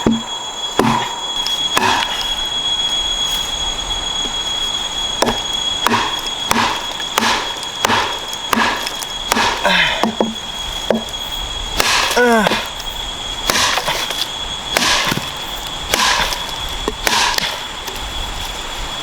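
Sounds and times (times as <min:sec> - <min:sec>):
chopping blows on wood: 0:00.0 - 0:01.1, 0:01.7 - 0:02.2, 0:05.2 - 0:11.0, 0:11.8 - 0:12.7, 0:13.5 - 0:14.2, 0:14.8 - 0:15.3, 0:15.9 - 0:17.6
high-pitched whine: 0:00.0 - 0:19.0.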